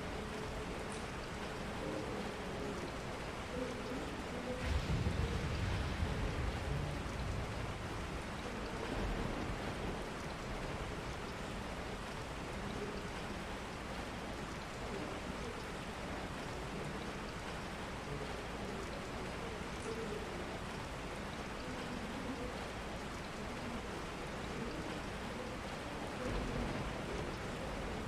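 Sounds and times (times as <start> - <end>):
steady rain: 0.0 - 28.0
low rumble: 4.6 - 10.8.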